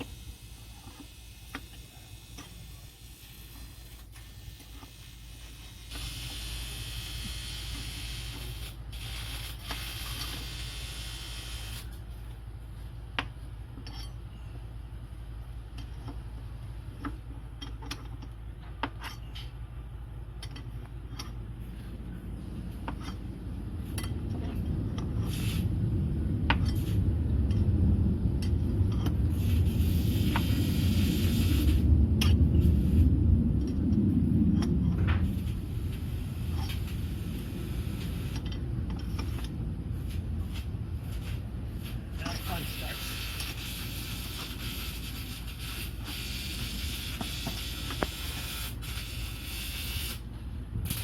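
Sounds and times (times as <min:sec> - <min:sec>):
low rumble: 0:18.2 - 0:51.0
hissing noise: 0:25.2 - 0:25.9, 0:29.3 - 0:31.9, 0:35.0 - 0:51.0.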